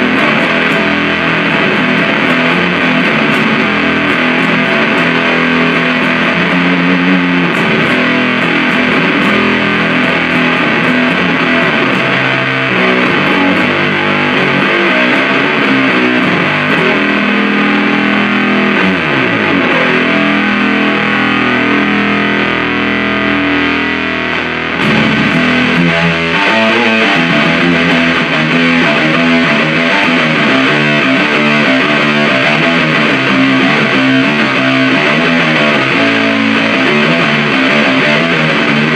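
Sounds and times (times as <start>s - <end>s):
fuzz-distorted guitar riffs: 0.0s - 38.9s.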